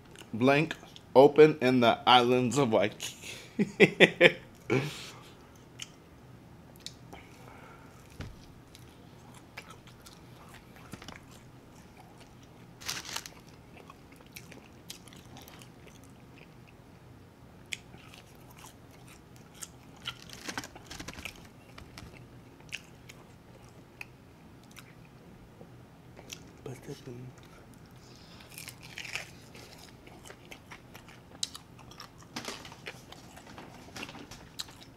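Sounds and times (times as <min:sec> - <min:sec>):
wet chewing sounds: 0:08.0 - 0:16.8, 0:27.4 - 0:34.9
crunching crispy food: 0:09.6 - 0:16.2, 0:17.8 - 0:23.8, 0:27.9 - 0:34.9.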